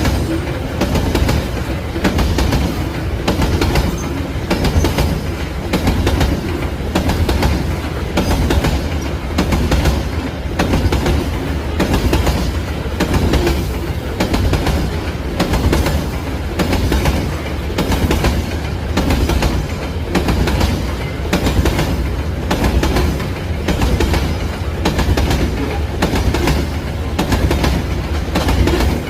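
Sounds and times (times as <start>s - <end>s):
freight train wagons rolling past: 0.0s - 29.0s
wheels clattering over rail joints: 0.0s - 29.0s.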